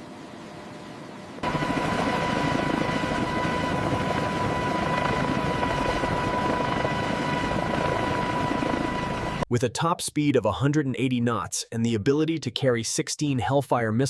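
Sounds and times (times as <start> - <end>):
helicopter rotor and turbine: 0.0 - 9.5.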